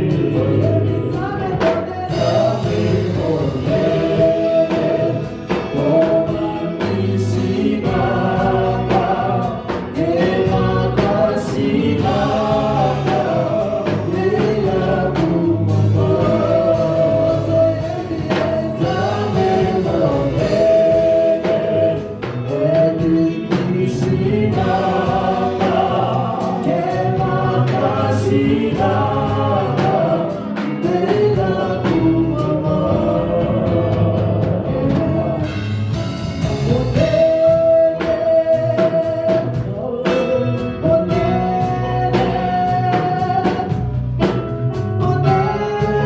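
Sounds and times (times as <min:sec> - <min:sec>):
band playing: 0:00.0 - 0:46.0
gospel choir singing: 0:00.0 - 0:46.0.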